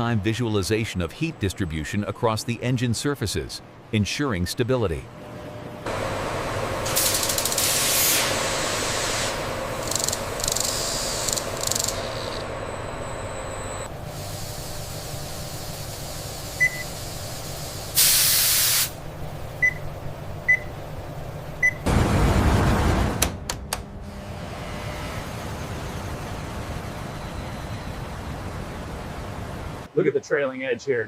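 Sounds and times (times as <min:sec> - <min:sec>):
low machine hum: 0:04.9 - 0:18.0, 0:19.0 - 0:29.9
pressurised air hissing: 0:06.8 - 0:12.4, 0:14.1 - 0:19.0.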